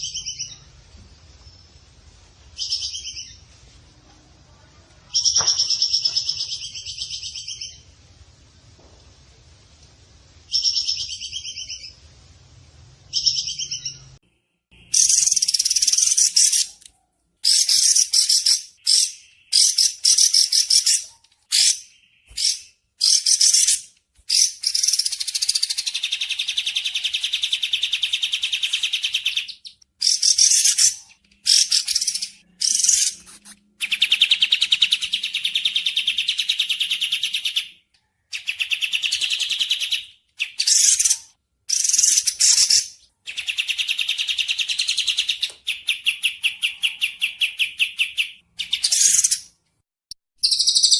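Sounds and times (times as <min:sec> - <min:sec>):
bird trills: 0:50.4 - 0:50.9.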